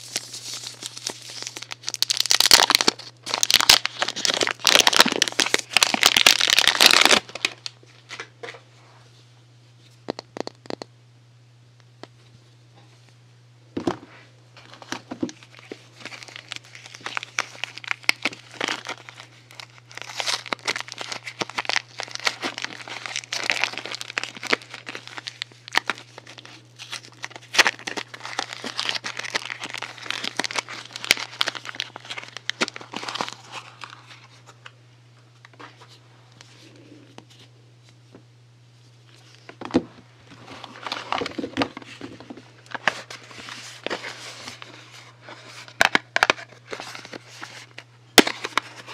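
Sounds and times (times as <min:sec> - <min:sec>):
packaging wrapper crinkling: 0:00.0 - 0:08.3, 0:14.6 - 0:34.6, 0:40.3 - 0:48.9.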